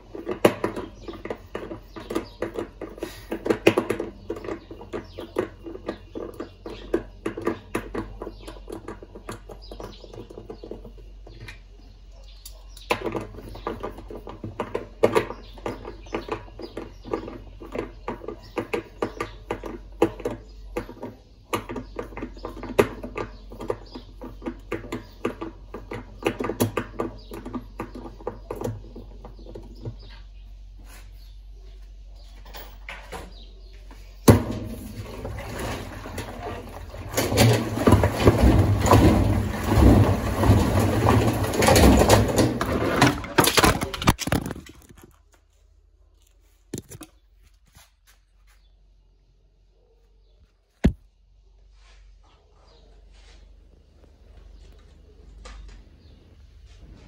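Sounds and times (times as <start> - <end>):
clicking and scraping of hand work: 0.0 - 30.2.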